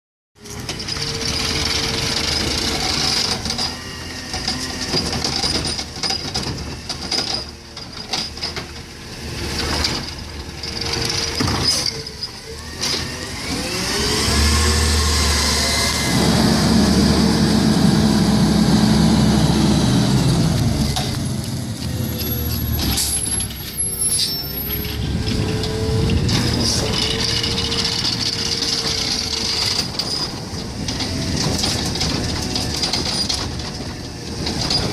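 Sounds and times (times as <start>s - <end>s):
garbage truck engine revving: 9.0s - 34.9s.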